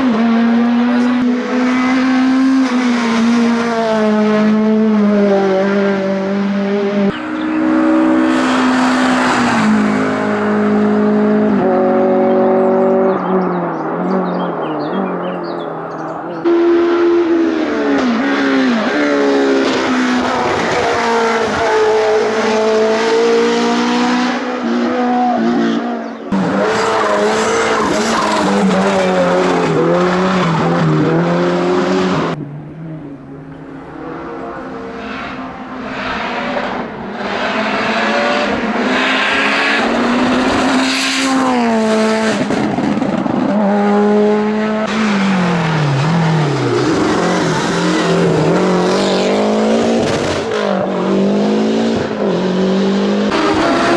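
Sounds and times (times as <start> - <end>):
race car engines at full throttle: 0.0 - 53.9.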